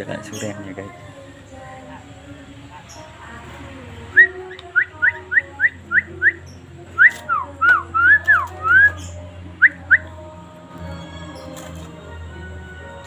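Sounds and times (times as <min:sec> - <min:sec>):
bird whistling: 0:04.1 - 0:10.1.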